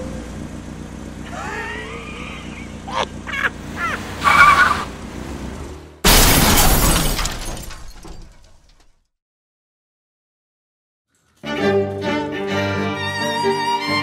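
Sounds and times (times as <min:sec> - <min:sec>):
car engine idling: 0:00.0 - 0:06.2
short screech: 0:03.8 - 0:05.0
loud car crash: 0:04.1 - 0:09.0.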